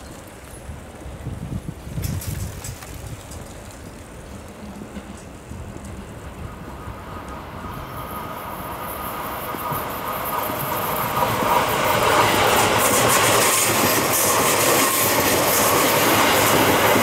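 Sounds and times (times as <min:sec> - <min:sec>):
electric train running: 0:04.3 - 0:17.0.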